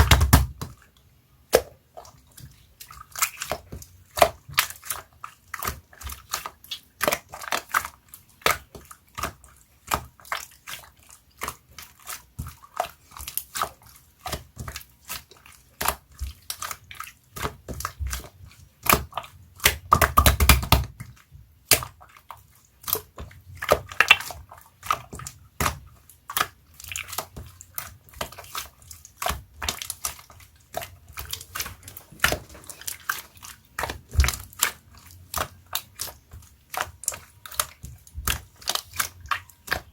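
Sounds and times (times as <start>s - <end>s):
slime squishing and popping: 0.0s - 0.7s, 17.4s - 22.0s, 22.9s - 39.9s.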